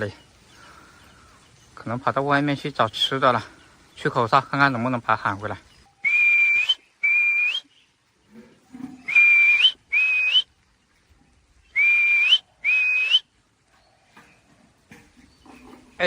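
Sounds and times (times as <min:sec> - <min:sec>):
high whistle calls: 0:05.8 - 0:07.8, 0:09.0 - 0:10.7, 0:11.6 - 0:13.4.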